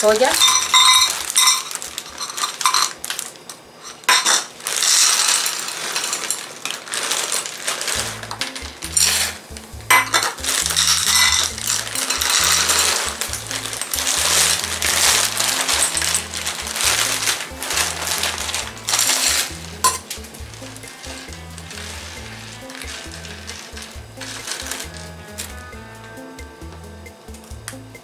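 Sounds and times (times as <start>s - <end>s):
dry chunks rattling into metal pot: 0.0s - 26.4s
background music with bass line: 8.0s - 28.0s.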